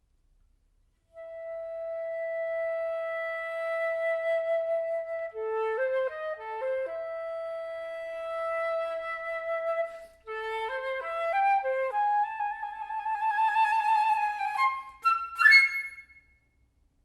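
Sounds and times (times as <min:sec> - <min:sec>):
flute melody: 0:01.2 - 0:16.3.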